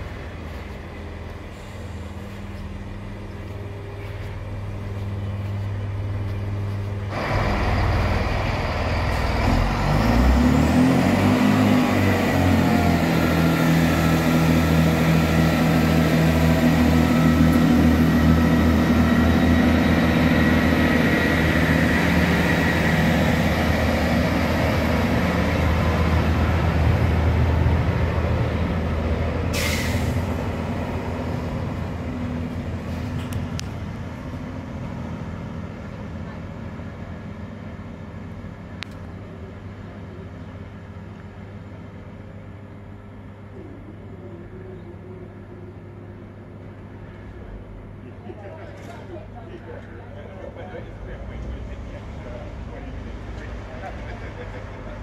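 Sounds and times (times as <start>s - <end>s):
diesel train engines whining: 0.0s - 55.0s
short hiss: 29.6s - 30.3s.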